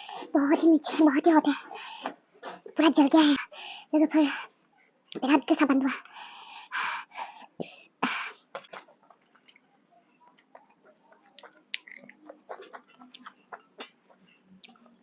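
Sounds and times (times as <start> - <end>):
person chewing: 8.6 - 14.9
wet mouth clicks: 8.6 - 14.9.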